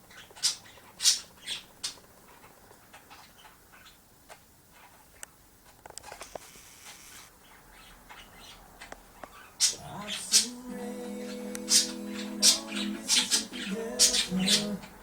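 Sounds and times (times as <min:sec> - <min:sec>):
budgies chattering softly: 0:00.0 - 0:05.2, 0:07.4 - 0:10.6, 0:11.2 - 0:15.0
budgies squawking: 0:07.0 - 0:10.6, 0:11.2 - 0:15.0.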